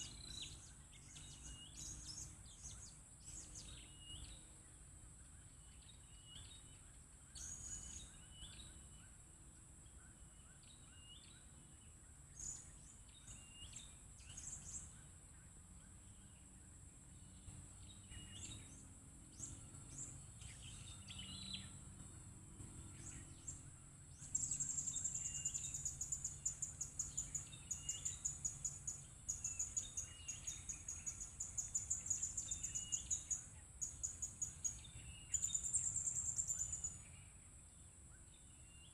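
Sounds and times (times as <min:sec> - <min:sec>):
rapidly pulsing insect chirp: 0:00.0 - 0:38.9
high insect drone: 0:11.6 - 0:37.2
bird chirps and calls: 0:17.2 - 0:37.2.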